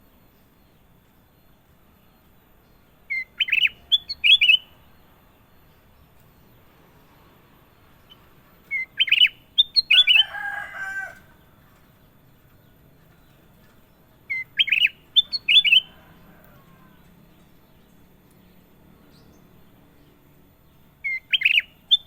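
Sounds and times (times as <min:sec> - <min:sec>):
bird whistling fluty notes: 0:03.1 - 0:04.7, 0:08.7 - 0:10.8, 0:14.3 - 0:16.0, 0:21.0 - 0:22.0
harsh bird call: 0:08.7 - 0:11.4.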